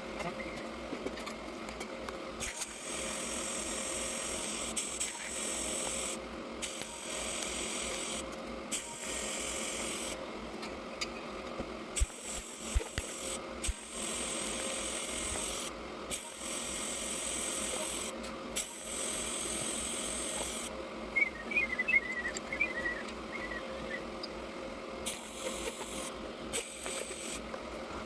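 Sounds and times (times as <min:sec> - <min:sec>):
welding arc buzzing and crackling: 0:02.4 - 0:10.2, 0:11.9 - 0:20.8, 0:25.0 - 0:28.0.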